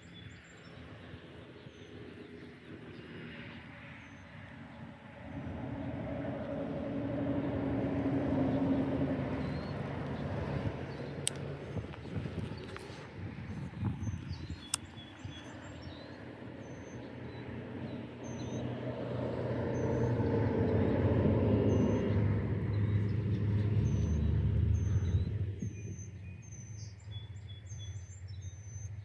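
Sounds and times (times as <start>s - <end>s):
vehicle driving past: 18.5s - 26.1s.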